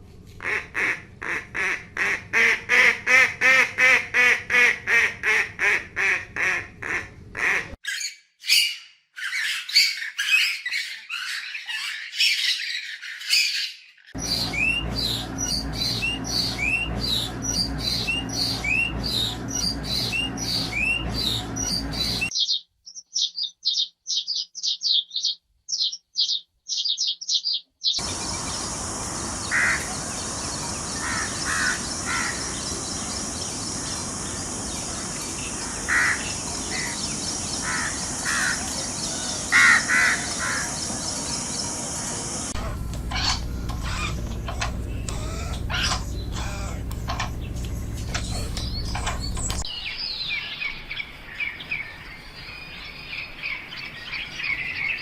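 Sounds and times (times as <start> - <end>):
repeated bird calls: 0.4 - 51.6
high bird chirps: 7.8 - 50.3
low steady hum: 14.2 - 22.3, 28.0 - 39.6, 40.3 - 49.7
bird squawks: 42.6 - 49.6.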